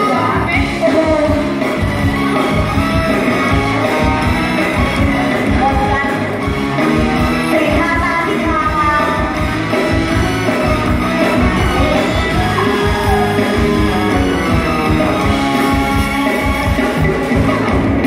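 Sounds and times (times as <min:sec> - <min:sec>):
person singing: 0:00.0 - 0:06.2, 0:10.8 - 0:18.0
live band music: 0:00.0 - 0:18.0.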